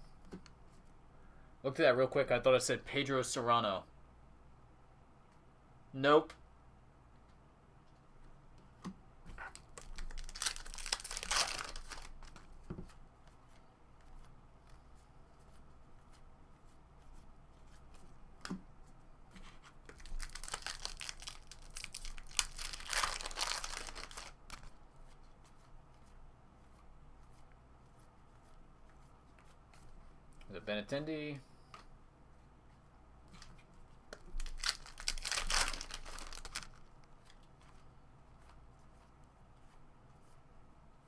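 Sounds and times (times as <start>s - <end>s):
card pack wrappers tearing and crinkling: 9.4s - 12.4s, 19.9s - 24.7s, 34.4s - 36.9s.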